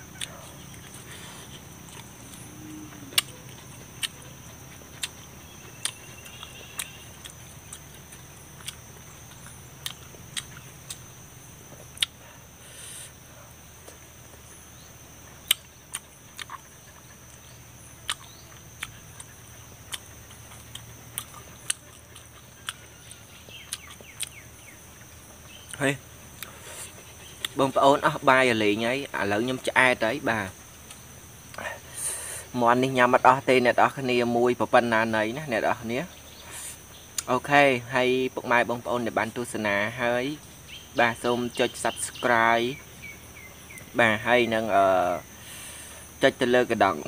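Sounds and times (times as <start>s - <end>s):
chewing crunchy chicken: 0.0s - 12.5s, 15.2s - 28.2s
high insect buzz: 0.0s - 47.0s.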